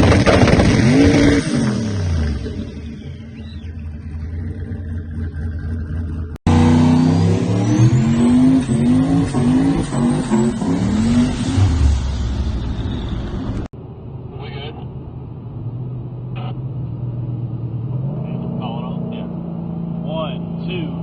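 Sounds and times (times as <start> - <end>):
car engine accelerating: 0.0 - 13.7.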